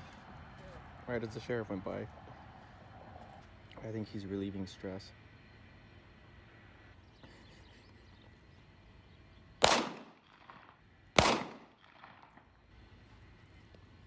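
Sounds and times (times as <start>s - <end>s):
gunshots with echo: 9.6s - 10.6s, 11.2s - 12.2s.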